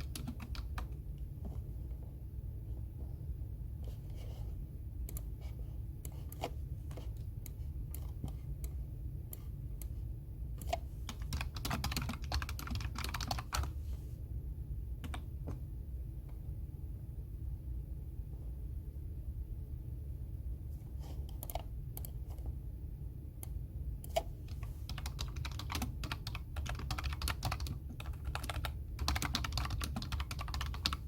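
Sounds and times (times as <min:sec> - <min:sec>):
typing on computer keyboard: 0:00.0 - 0:01.0, 0:10.6 - 0:13.7, 0:21.3 - 0:22.2, 0:24.0 - 0:31.0
steady low hum: 0:00.0 - 0:31.0.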